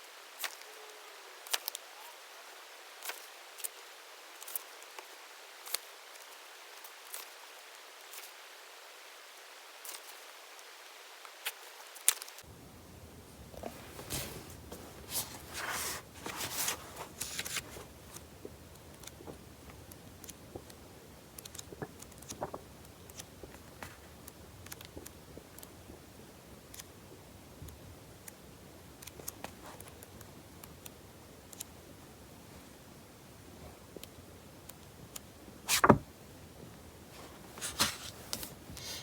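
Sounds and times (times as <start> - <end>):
rustling handling sounds: 13.1 - 20.8, 21.4 - 25.7, 35.7 - 36.1, 37.1 - 39.0
faint clicks and taps: 16.2 - 26.1.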